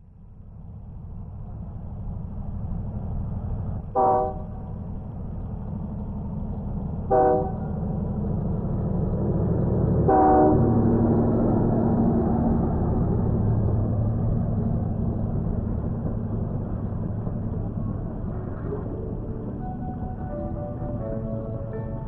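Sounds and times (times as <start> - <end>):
train rumbling: 0.0 - 22.0
train horn blasts: 4.0 - 4.7, 7.1 - 7.8, 10.0 - 10.9.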